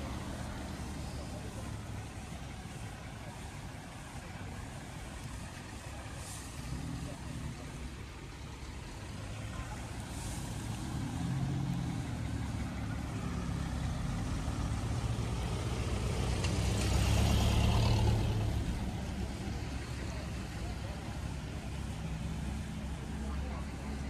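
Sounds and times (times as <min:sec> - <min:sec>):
off-road vehicle engine droning: 0:00.0 - 0:24.0.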